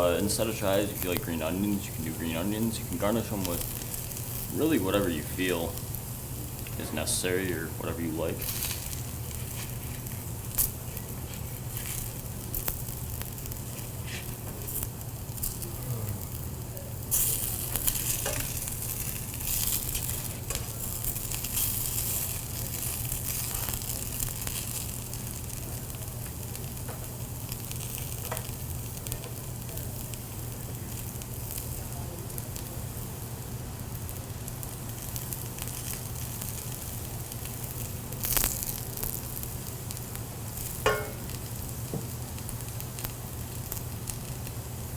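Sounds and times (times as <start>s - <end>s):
pancakes sizzling in a pan: 0.0s - 44.9s
oil spattering: 40.8s - 41.4s.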